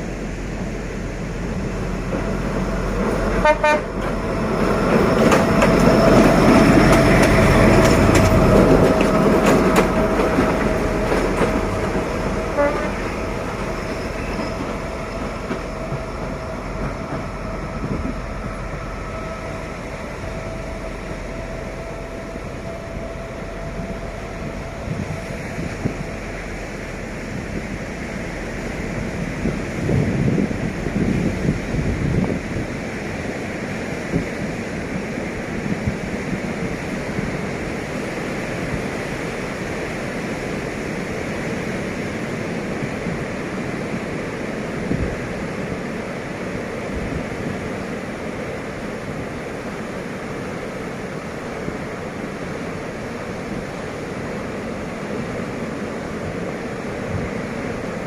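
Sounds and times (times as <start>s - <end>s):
diesel locomotive running past: 0.0s - 58.0s
locomotive horn toots: 3.3s - 4.2s, 12.2s - 15.1s.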